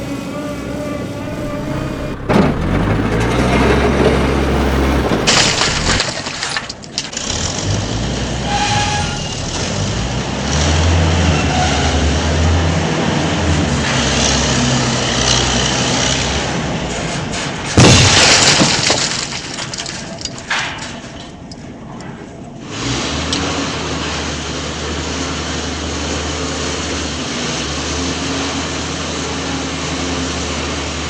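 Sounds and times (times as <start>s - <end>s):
loud crash: 0.0s - 6.9s, 17.1s - 21.0s
engine rumbling: 0.0s - 31.0s.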